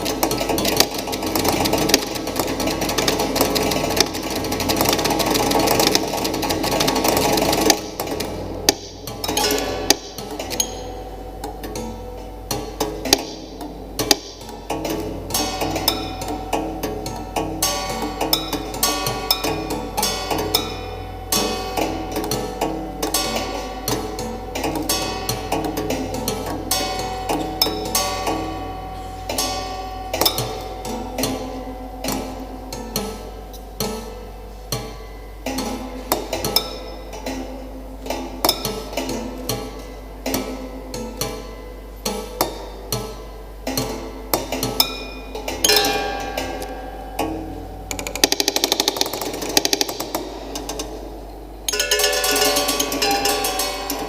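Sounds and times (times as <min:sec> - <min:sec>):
mechanical clicks: 0:00.0 - 0:11.9, 0:47.9 - 0:51.0
mechanical knocks: 0:00.0 - 0:28.5, 0:42.1 - 0:51.1
ringing piano string notes: 0:00.0 - 0:54.0.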